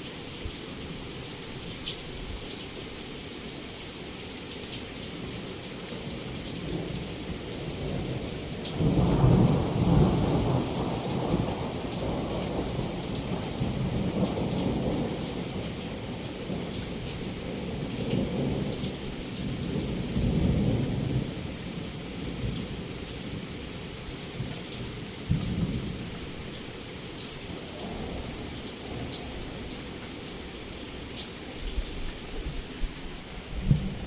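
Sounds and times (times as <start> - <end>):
heavy rain falling: 0.0 - 34.0
thunder rumbling: 31.6 - 34.0.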